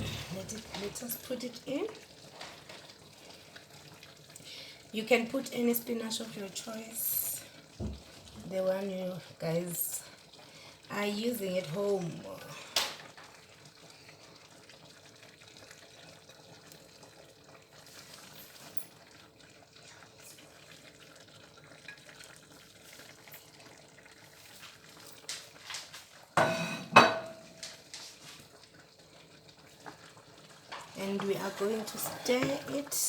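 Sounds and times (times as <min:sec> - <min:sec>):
pot cooking hiss: 0:00.0 - 0:33.0
metal cookware clatter: 0:26.4 - 0:27.6, 0:30.7 - 0:33.0.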